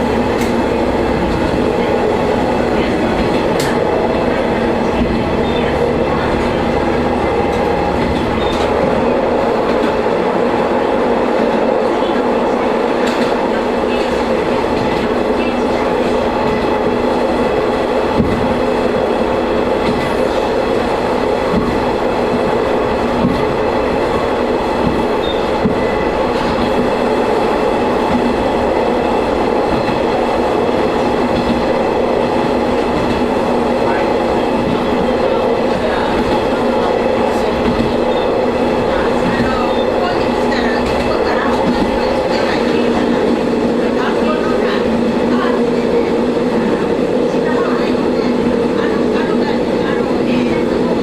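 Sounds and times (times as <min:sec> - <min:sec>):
diesel railcar engine drone: 0:00.0 - 0:51.0.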